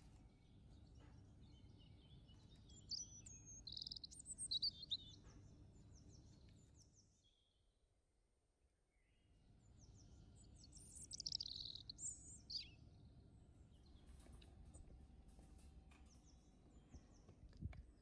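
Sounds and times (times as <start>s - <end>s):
birds chirping: 0.0s - 7.3s, 9.6s - 18.0s.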